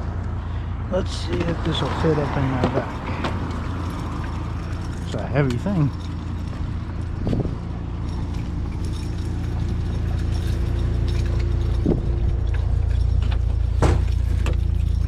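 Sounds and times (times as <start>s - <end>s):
steady low rumble: 0.0s - 15.0s
metal scrap knocking and clanking: 11.1s - 14.7s.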